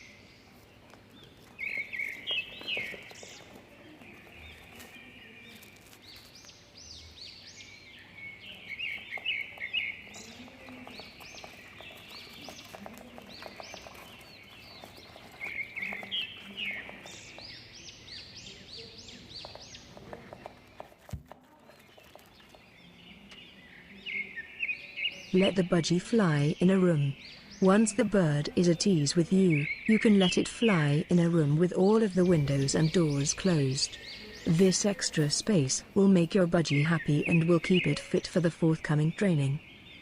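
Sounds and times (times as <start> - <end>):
budgerigars chirping: 1.2 - 20.7, 22.0 - 40.0.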